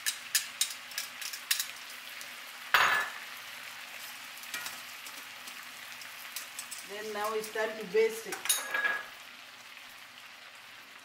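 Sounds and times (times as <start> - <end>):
oil popping and crackling: 0.0 - 2.4, 3.9 - 7.0
fish frying in butter: 0.0 - 11.0.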